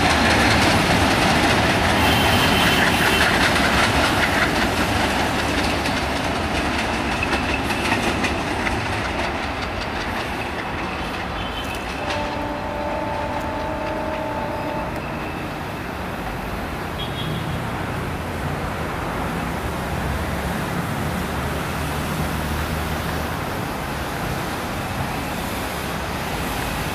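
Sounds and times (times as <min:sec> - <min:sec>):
diesel train rumbling: 0:00.0 - 0:26.9
road traffic noise: 0:00.0 - 0:26.9
two-tone train horn: 0:02.0 - 0:03.4, 0:11.4 - 0:15.8.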